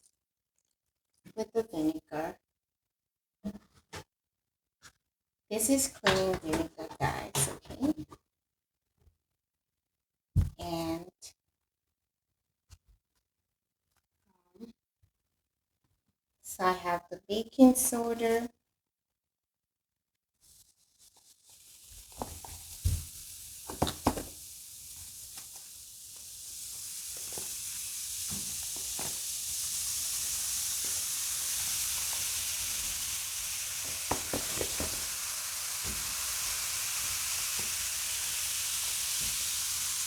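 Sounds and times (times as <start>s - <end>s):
liquid fizzing hiss: 21.0s - 40.0s.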